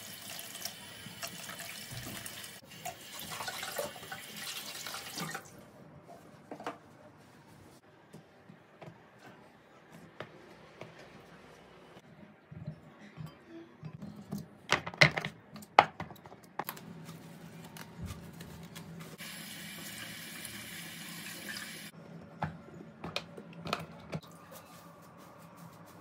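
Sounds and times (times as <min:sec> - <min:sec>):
kitchen tap running: 0:00.0 - 0:05.5, 0:19.2 - 0:21.9.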